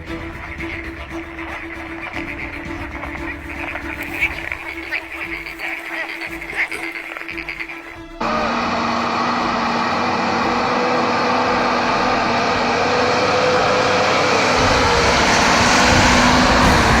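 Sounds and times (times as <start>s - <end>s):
mechanical drone with hum: 8.2s - 17.0s
deep rumble: 9.2s - 17.0s.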